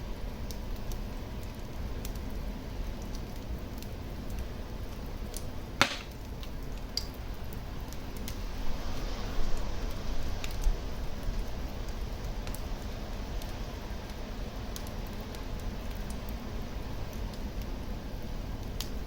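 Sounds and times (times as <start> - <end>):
fire crackling in a fireplace: 0.0 - 5.4, 9.5 - 19.0
loud sharp fire pop: 5.8 - 6.1.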